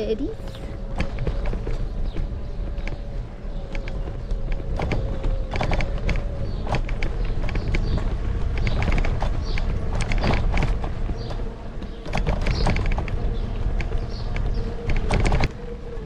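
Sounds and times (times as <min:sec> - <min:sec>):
sharp clicks and rattles: 0:00.0 - 0:16.0
wind on microphone: 0:00.0 - 0:16.0.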